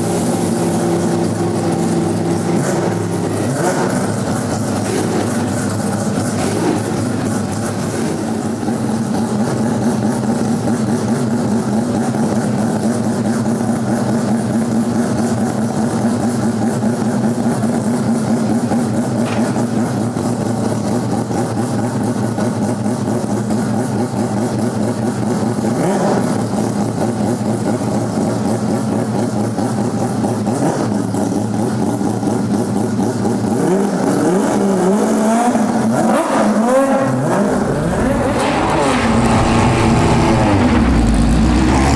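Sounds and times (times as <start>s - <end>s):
rotary engine revving: 33.6s - 41.9s.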